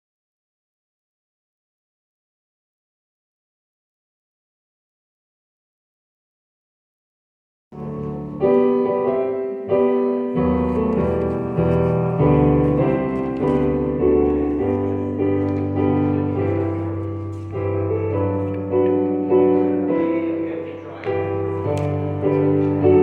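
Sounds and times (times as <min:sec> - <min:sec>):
piano playing slow chords: 0:07.8 - 0:23.0.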